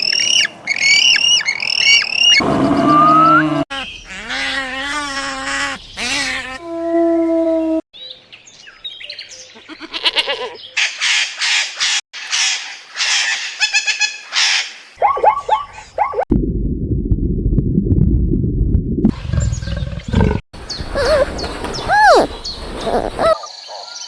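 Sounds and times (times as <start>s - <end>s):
low rumbling animal growl: 2.4s - 3.7s, 19.1s - 20.4s.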